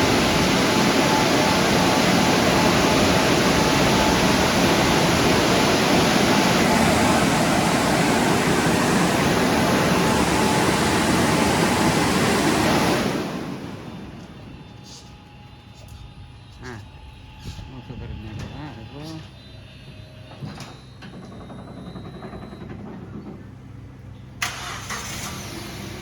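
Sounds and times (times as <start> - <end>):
automatic car wash rushing: 0.0 - 15.0, 24.1 - 26.0.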